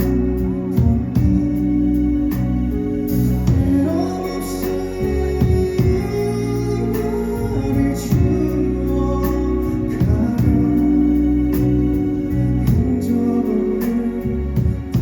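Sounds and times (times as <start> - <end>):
bass: 0.0 - 15.0
organ-like keyboard chords: 0.0 - 15.0.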